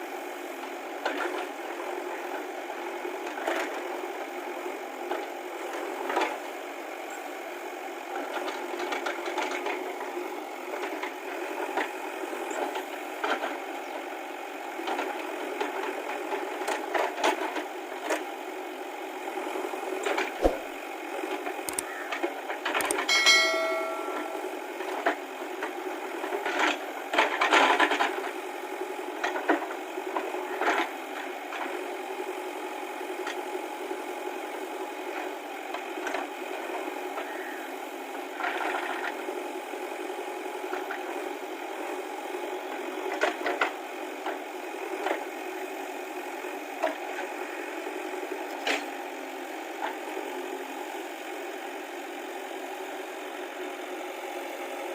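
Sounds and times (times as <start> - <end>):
metallic knocks and clanks: 22.9 - 24.4
brief ringing tone: 23.0 - 24.8.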